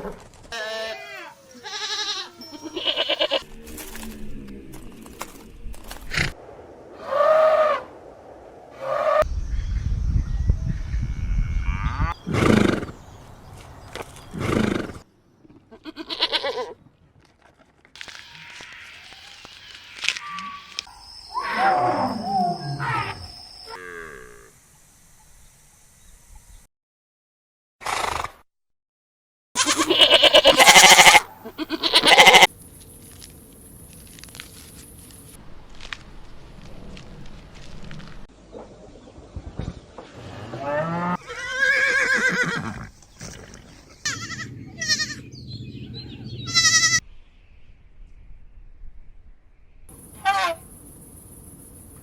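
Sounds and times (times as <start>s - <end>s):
goat bleating: 0.5s - 3.4s, 15.7s - 16.8s, 29.6s - 32.5s, 44.0s - 45.2s, 46.5s - 47.0s
quavering high animal call: 0.6s - 3.4s, 20.1s - 24.4s, 29.6s - 32.5s, 46.4s - 47.0s, 50.0s - 50.7s.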